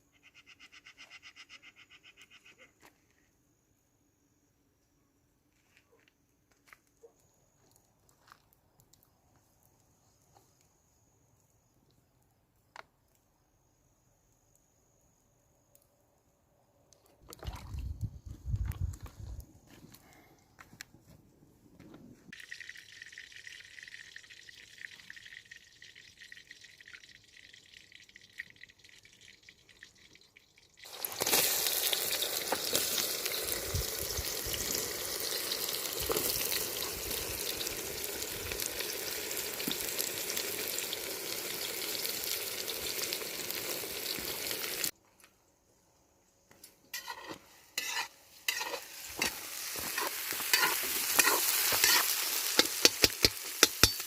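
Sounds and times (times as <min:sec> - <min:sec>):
food sizzling in hot oil: 0:22.3 - 0:44.9, 0:46.9 - 0:54.0.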